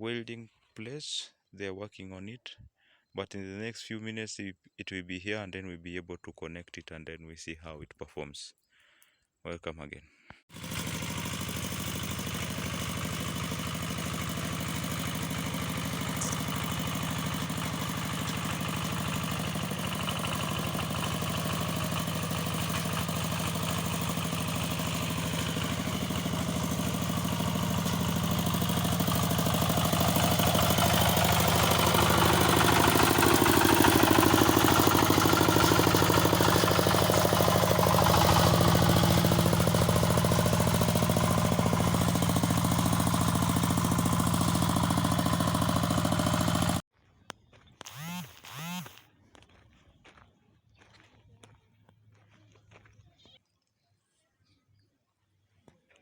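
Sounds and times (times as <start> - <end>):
walking tractor engine running: 10.5 - 46.8, 47.8 - 50.2.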